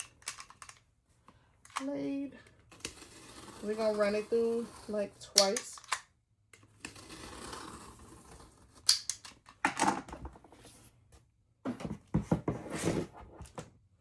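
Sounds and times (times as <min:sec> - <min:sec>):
blade scraping through foam board: 0:02.7 - 0:05.3, 0:06.8 - 0:08.9.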